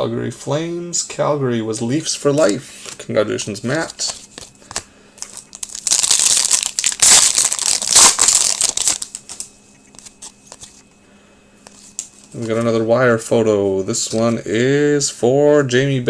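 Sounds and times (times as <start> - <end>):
foil wrapper crinkling and tearing: 3.8 - 10.7.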